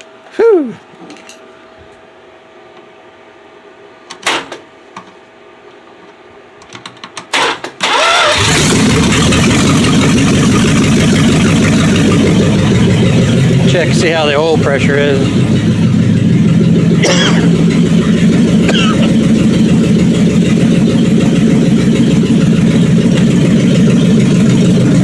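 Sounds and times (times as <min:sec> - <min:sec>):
engine idling loudly: 0:08.3 - 0:25.0.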